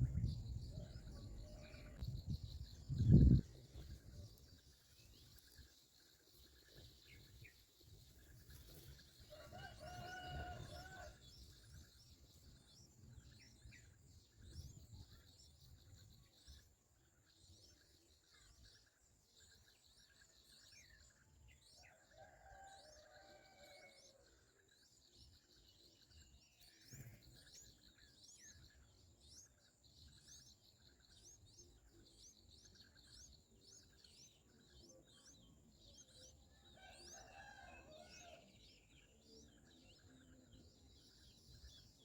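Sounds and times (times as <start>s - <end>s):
distant rooster crowing: 9.3s - 11.2s, 21.9s - 24.2s, 36.7s - 38.6s.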